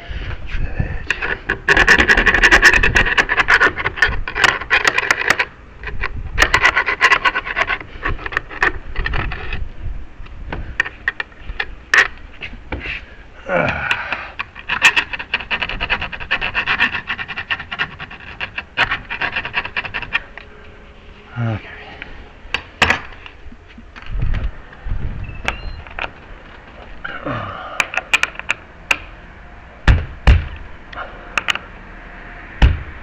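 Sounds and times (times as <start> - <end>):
hand file rasping on metal: 14.5 - 20.4.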